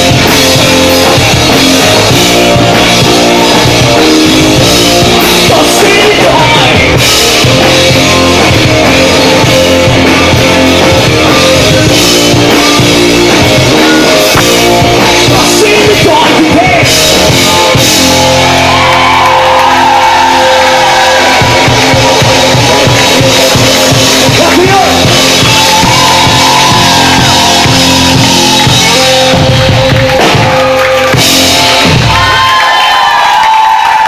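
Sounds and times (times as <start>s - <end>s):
drum kit: 0.0s - 34.0s
guitars: 0.0s - 34.0s
live rock band playing: 0.0s - 34.0s
person singing: 5.4s - 7.4s.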